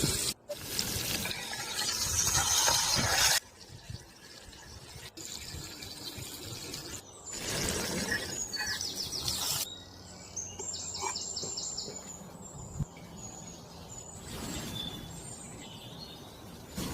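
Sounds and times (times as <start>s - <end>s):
bird chirping: 5.9s - 16.7s.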